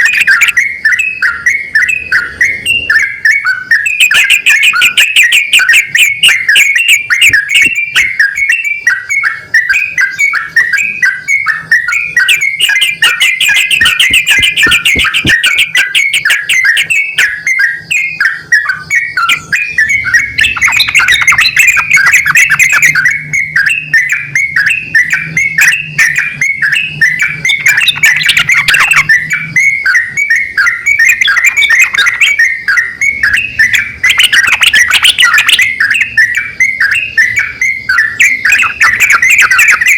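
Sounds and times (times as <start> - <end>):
bulbuls chattering calls: 12.2 - 17.3, 19.2 - 23.2, 27.2 - 29.5, 30.9 - 32.5, 33.6 - 36.5, 37.2 - 39.9.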